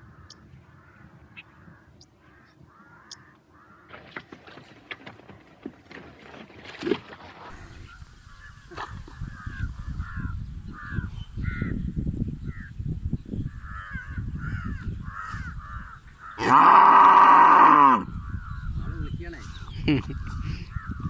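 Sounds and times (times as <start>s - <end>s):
animal cawing calls: 0.1s - 3.9s, 13.6s - 19.0s.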